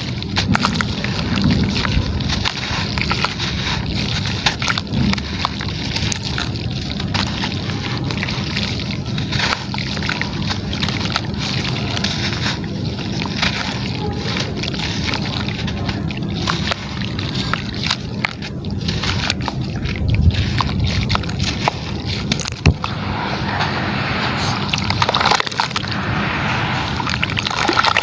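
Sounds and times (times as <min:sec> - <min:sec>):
gritty material crackling: 0:00.0 - 0:28.0
water sloshing and splashing: 0:00.0 - 0:28.0.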